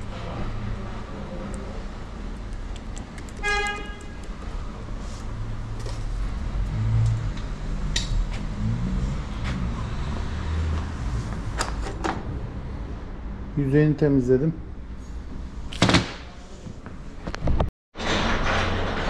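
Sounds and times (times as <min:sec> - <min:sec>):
low rumble of vehicles: 0:00.0 - 0:15.7
car horn toot: 0:03.4 - 0:04.2.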